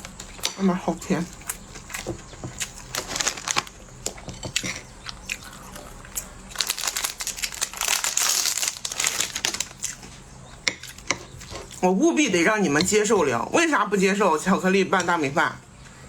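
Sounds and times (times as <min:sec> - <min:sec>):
plastic wrapper crinkling: 0:02.7 - 0:03.9, 0:06.5 - 0:10.0.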